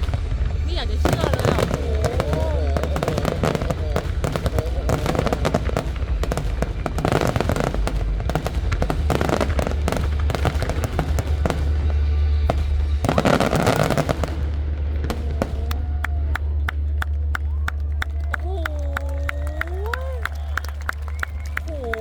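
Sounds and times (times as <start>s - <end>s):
music playing: 0.0s - 17.6s
fireworks bangs and crackling: 0.0s - 22.0s.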